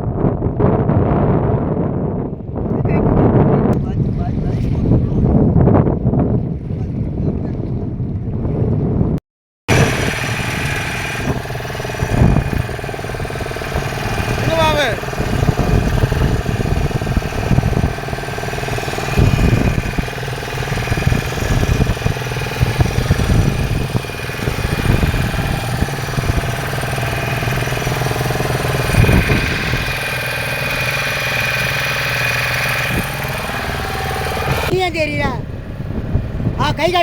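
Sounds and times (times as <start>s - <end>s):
boat engine running: 3.3s - 37.0s.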